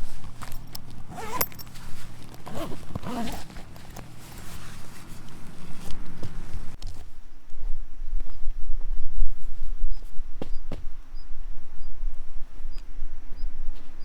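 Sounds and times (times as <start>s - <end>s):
zipper being pulled: 0.1s - 6.0s.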